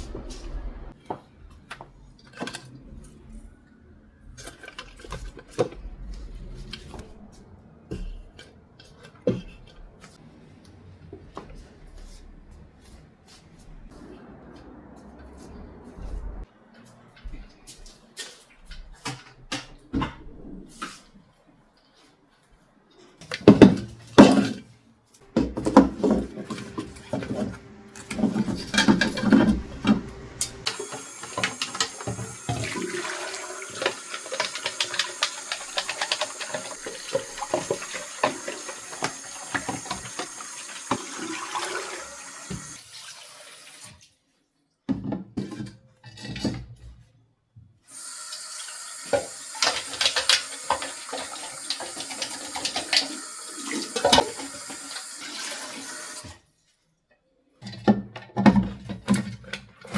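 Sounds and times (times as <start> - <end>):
clatter of things handled in sink: 4.4 - 7.1, 25.4 - 42.8, 44.9 - 47.1, 49.1 - 54.8, 57.6 - 59.9
water running from tap into sink: 25.4 - 44.0, 47.9 - 56.4.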